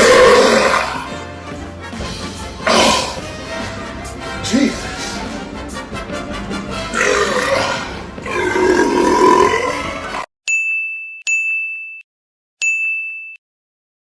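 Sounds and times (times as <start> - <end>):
noisy voice-like sounds: 4.4 - 5.3.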